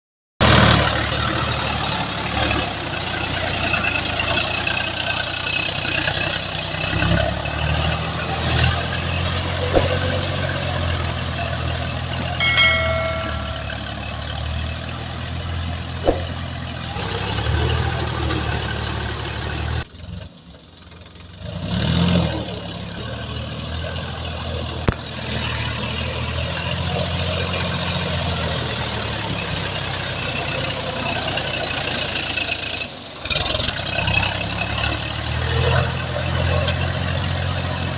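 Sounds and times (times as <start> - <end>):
tractor diesel engines running: 0.4 - 37.9
short pitched tone: 12.4 - 14.1.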